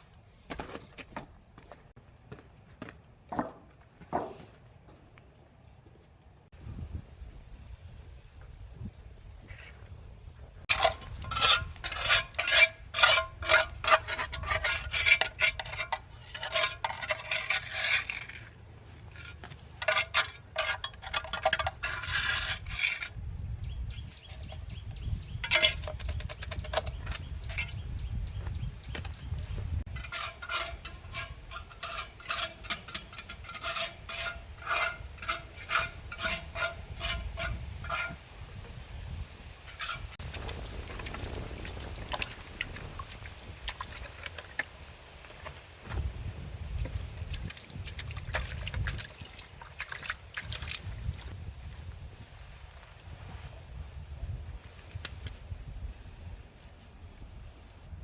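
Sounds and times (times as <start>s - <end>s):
metal tool scraping and clinking: 10.7s - 23.2s, 25.4s - 27.8s, 29.8s - 38.2s, 39.6s - 40.2s.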